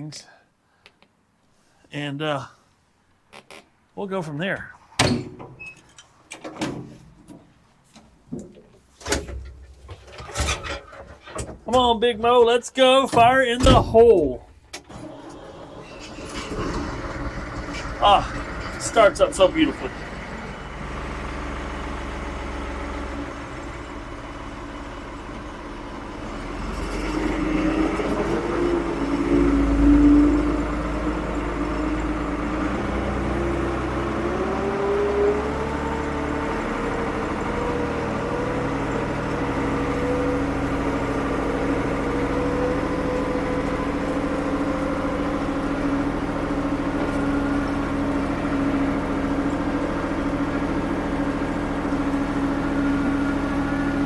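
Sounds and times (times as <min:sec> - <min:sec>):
diesel engine idling and revving: 0:13.2 - 0:54.0.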